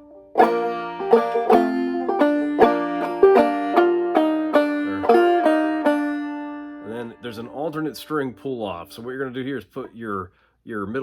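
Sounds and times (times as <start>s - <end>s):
banjo plucked notes and strums: 0.0s - 8.3s.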